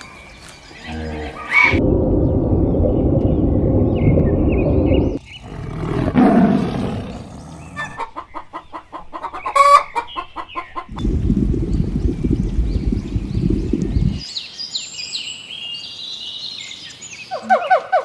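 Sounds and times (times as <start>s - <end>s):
low rumbling noise: 1.7s - 7.7s, 10.9s - 14.2s
chicken clucking: 7.8s - 11.0s.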